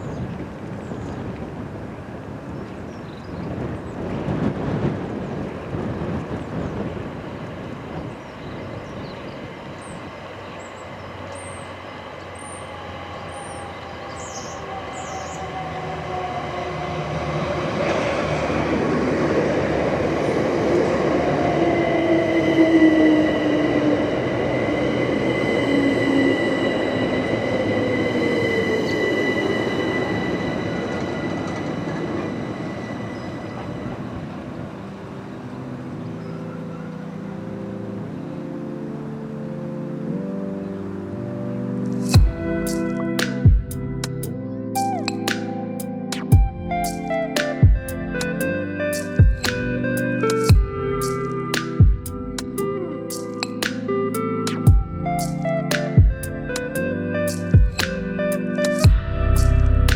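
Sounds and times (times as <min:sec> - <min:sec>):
electric train passing: 0:00.0 - 0:59.9
traction equipment whining: 0:03.6 - 0:35.7, 0:54.2 - 0:59.9
high-pitched squeal: 0:11.6 - 0:34.6, 0:52.4 - 0:59.9.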